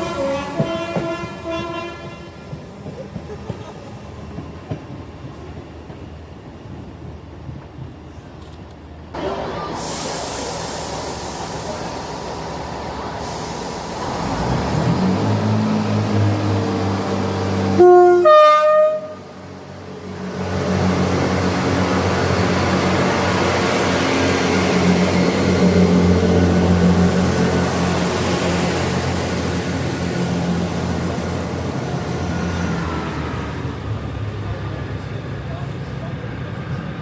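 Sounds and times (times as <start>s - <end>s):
train horn two notes: 0.0s - 2.4s, 17.8s - 19.3s
train running hum: 0.0s - 37.0s.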